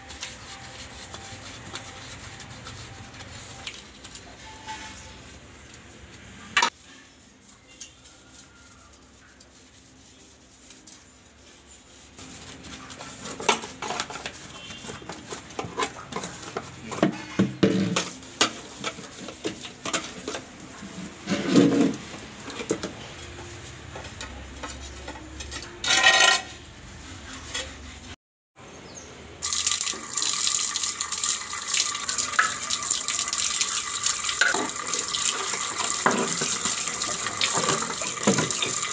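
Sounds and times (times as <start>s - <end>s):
fridge parts clattering and knocking: 13.3s - 20.5s
tap running: 29.5s - 38.9s.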